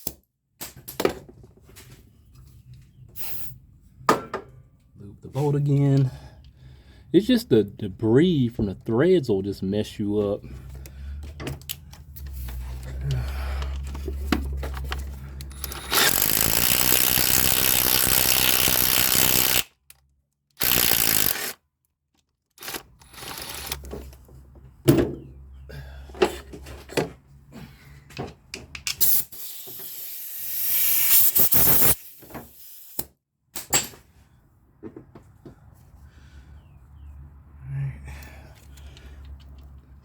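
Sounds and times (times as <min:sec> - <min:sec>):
tools knocking and clattering: 0:04.1 - 0:04.6, 0:33.6 - 0:34.1
impact wrench running: 0:15.4 - 0:19.7, 0:20.6 - 0:21.6, 0:22.6 - 0:23.9, 0:29.0 - 0:33.1.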